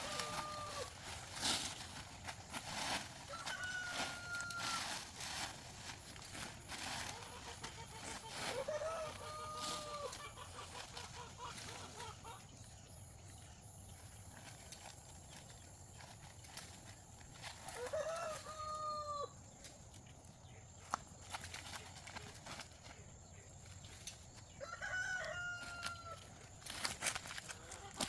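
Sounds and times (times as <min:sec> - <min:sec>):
rooster crowing: 0:00.0 - 0:01.0, 0:03.2 - 0:05.0, 0:08.3 - 0:10.5, 0:17.6 - 0:19.4, 0:24.5 - 0:26.3.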